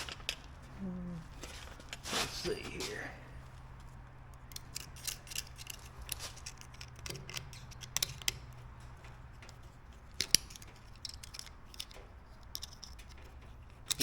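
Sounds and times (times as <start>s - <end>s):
steady low hum: 0.0s - 10.8s
metal pins clicking and tapping: 3.4s - 14.0s.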